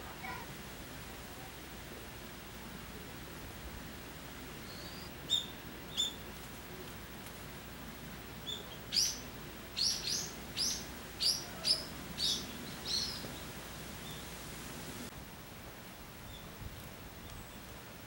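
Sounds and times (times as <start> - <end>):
small bird chirping: 4.6 - 6.2, 8.4 - 14.3.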